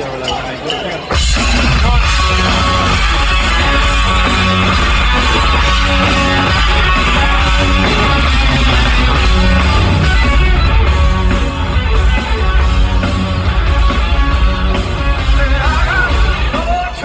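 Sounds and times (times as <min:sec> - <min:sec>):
bass and drums: 0:01.1 - 0:17.0
distorted electric guitar riff: 0:01.1 - 0:17.0.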